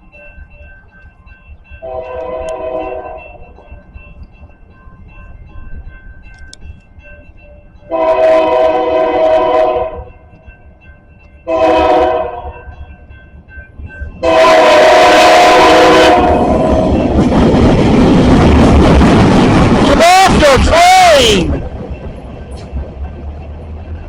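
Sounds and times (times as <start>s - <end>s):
passing locomotive rumble: 0.0s - 24.0s
locomotive air horn blasts: 1.8s - 3.2s, 7.9s - 10.1s, 11.5s - 12.6s, 14.2s - 17.0s.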